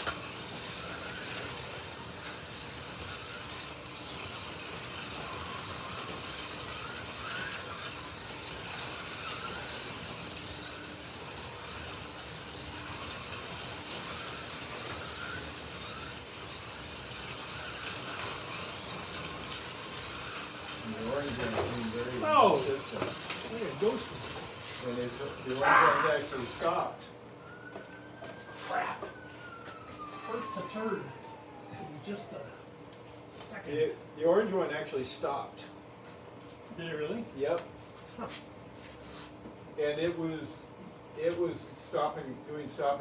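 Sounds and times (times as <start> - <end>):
slot car motors whirring: 0.0 - 27.8.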